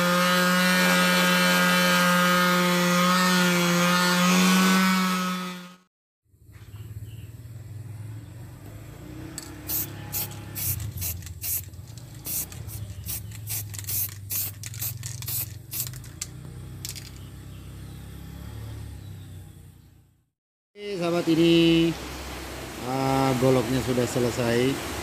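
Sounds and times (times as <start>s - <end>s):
quick scraping strokes: 9.6s - 16.2s.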